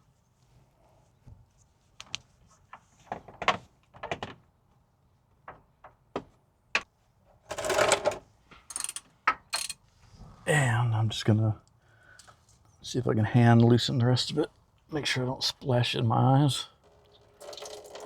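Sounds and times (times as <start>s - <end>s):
metal wrench clicking and knocking: 8.7s - 9.8s.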